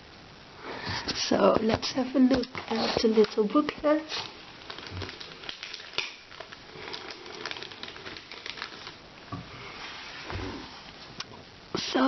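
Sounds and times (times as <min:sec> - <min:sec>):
paper booklet rustling: 0:01.5 - 0:09.0.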